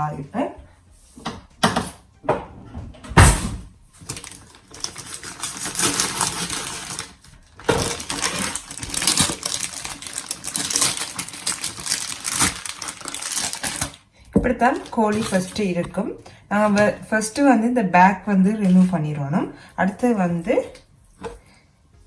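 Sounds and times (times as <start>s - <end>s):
plastic bag crinkling: 4.0s - 16.0s.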